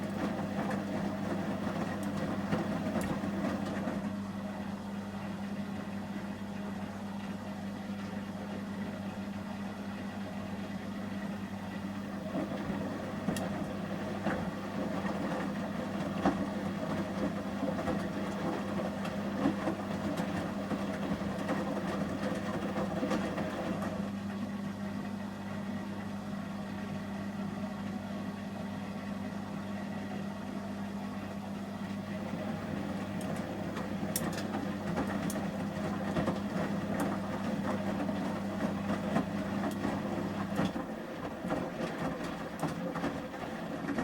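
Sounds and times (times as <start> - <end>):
washing machine drum sloshing: 0.0 - 4.4, 11.7 - 24.4, 31.1 - 44.0.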